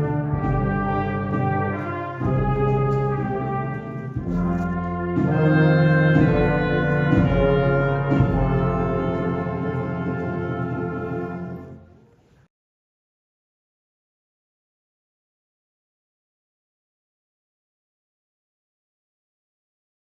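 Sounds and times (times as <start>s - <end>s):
brass ensemble holding chords: 0.0s - 12.0s.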